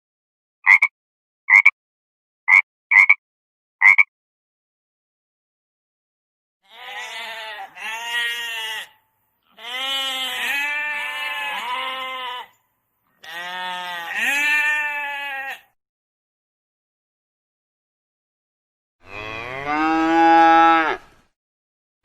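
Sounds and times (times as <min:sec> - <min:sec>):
livestock bleating: 0:06.6 - 0:12.6, 0:13.2 - 0:15.8.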